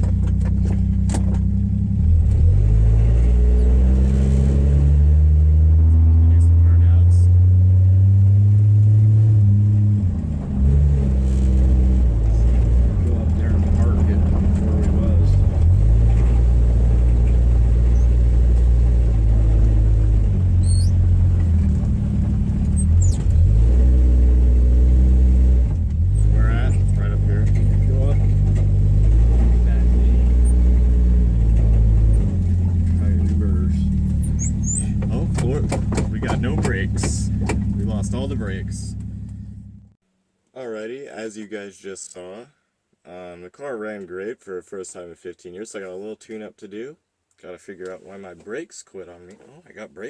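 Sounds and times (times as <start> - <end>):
car engine through worn muffler: 0.0 - 40.0.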